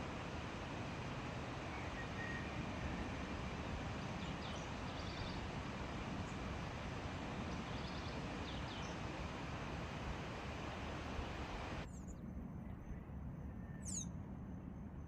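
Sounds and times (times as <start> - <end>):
outdoor background noise: 0.0 - 15.0
faint high bird chirps: 13.6 - 14.2.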